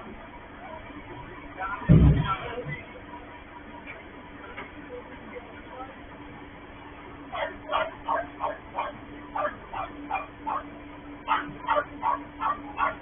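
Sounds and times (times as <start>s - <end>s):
steady low hum: 0.0s - 13.0s
dog barking rapidly: 7.3s - 13.0s.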